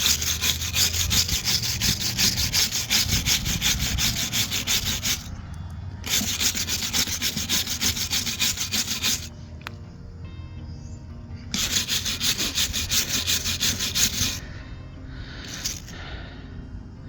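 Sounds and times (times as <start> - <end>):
brush scrubbing a surface: 0.0 - 5.3, 6.0 - 9.3, 11.5 - 14.4, 15.5 - 15.9.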